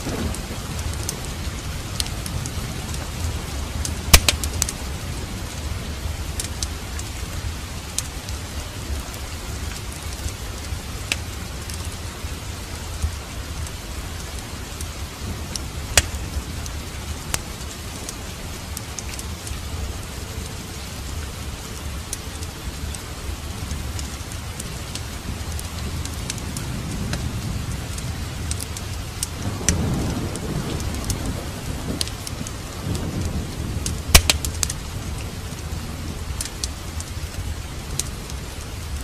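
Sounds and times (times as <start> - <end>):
wood fire crackling pops: 0.0 - 4.8, 6.4 - 7.1, 11.0 - 11.9, 15.5 - 19.5, 23.7 - 31.2, 32.0 - 34.9
steady rain: 0.0 - 39.0.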